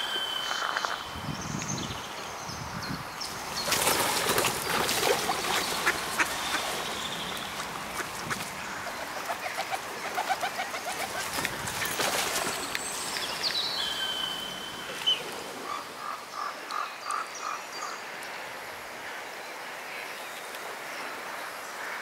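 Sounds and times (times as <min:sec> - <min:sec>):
wind noise: 0:00.6 - 0:09.0, 0:11.0 - 0:13.5
birds calling: 0:03.2 - 0:17.9.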